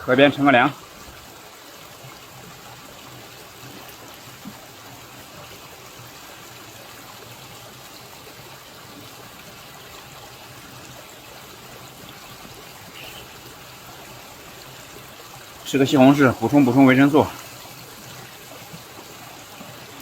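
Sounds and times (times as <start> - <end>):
small river flowing: 0.0 - 20.0.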